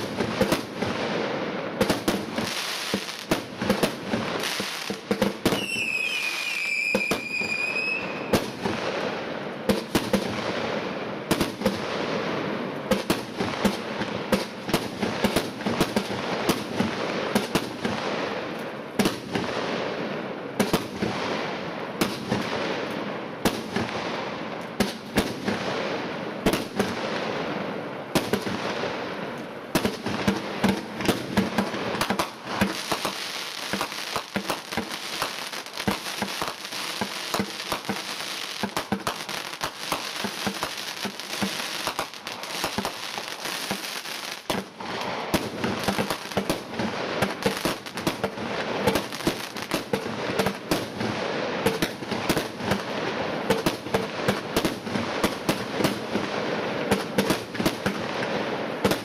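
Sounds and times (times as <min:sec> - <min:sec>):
fireworks crackling: 0:00.0 - 0:59.0
high whistling firework: 0:00.0 - 0:59.0
fireworks launch thumps and bursts: 0:01.8 - 0:05.8, 0:29.7 - 0:59.0.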